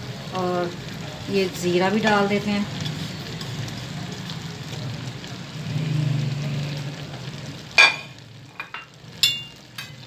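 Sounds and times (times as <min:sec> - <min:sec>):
liver sizzling in oil: 0:00.0 - 0:10.0
kitchenware clacking: 0:07.7 - 0:10.0.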